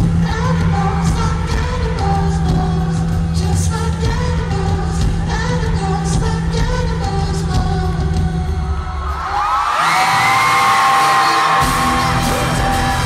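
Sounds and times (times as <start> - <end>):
live pop-rock band with singing: 0.0 - 13.0
crowd cheering and screaming: 7.9 - 13.0.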